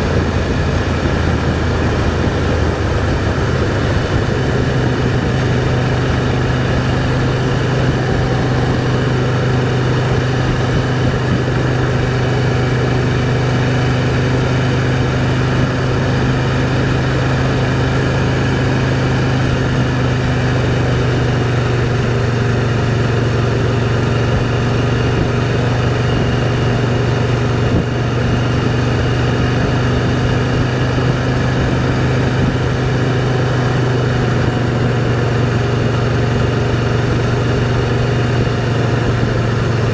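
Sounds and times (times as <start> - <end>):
wind rushing past microphone: 0.0 - 22.2
motorcycle engine cruising: 0.0 - 39.9.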